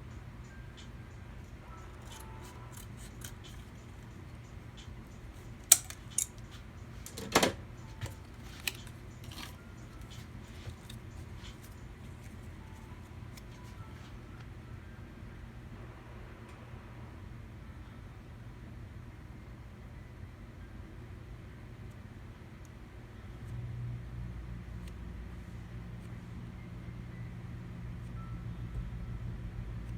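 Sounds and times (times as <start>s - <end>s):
steady low hum: 0.0s - 29.9s
small hard parts clicking: 1.7s - 12.9s.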